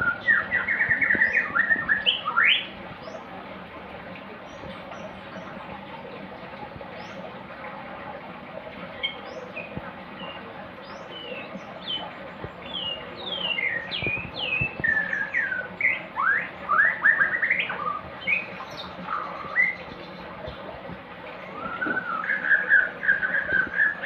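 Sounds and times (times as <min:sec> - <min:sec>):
songbird singing: 0:00.0 - 0:03.3, 0:09.0 - 0:20.6, 0:21.3 - 0:24.0.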